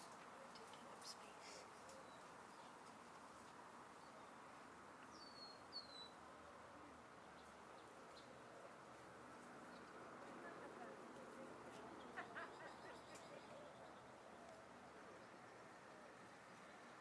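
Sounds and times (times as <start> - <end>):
faint steady hiss: 0.0 - 17.0
bird chirping: 5.0 - 6.2.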